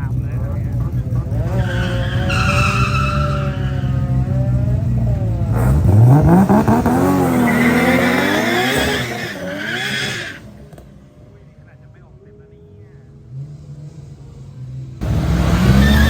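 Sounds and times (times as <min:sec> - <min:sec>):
car engine revving: 0:00.0 - 0:11.6, 0:13.2 - 0:16.0
tyre screech: 0:01.4 - 0:04.6, 0:06.7 - 0:10.6, 0:15.1 - 0:16.0.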